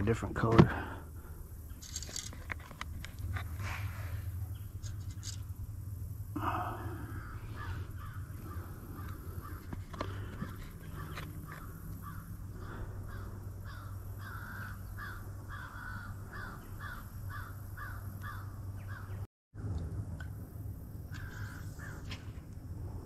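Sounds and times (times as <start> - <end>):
steady low hum: 0.0 - 23.0
bird calling: 6.4 - 19.3, 21.1 - 22.3.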